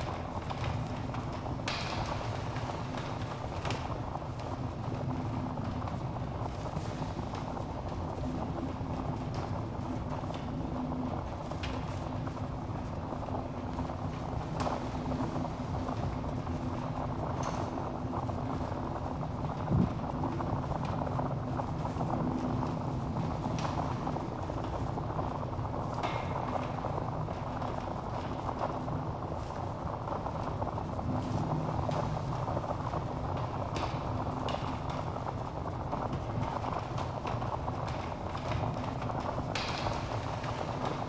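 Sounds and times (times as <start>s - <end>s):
fire crackles and pops: 11.1s - 41.0s.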